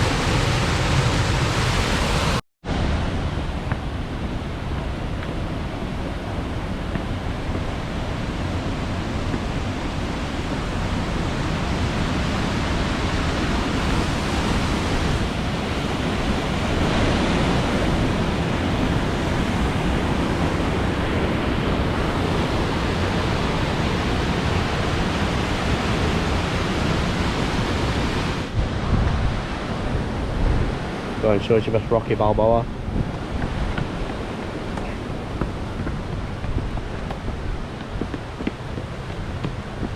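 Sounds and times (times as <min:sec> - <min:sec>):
waterfall rushing: 0:00.0 - 0:03.0, 0:06.4 - 0:28.6.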